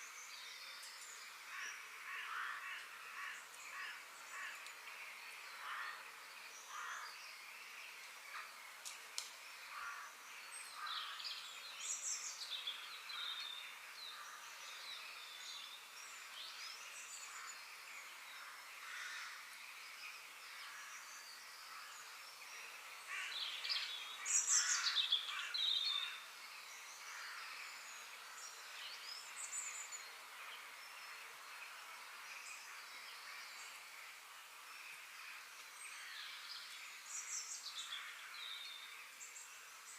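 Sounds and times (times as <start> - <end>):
faint steady background hiss: 0.0 - 39.9
birds chirping and calling: 23.1 - 30.1.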